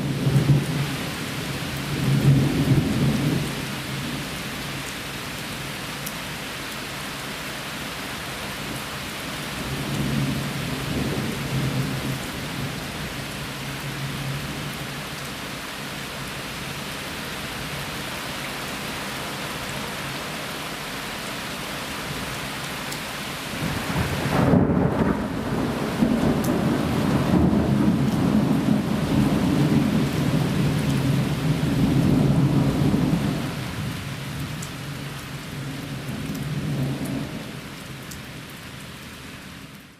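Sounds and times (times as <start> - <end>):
heavy rain falling: 0.0 - 39.9
thunder rumbling: 23.6 - 34.0.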